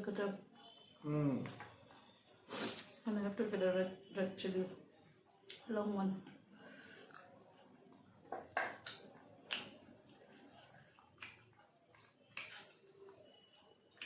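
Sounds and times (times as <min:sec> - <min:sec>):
eating clicks and smacks: 0:08.6 - 0:12.9.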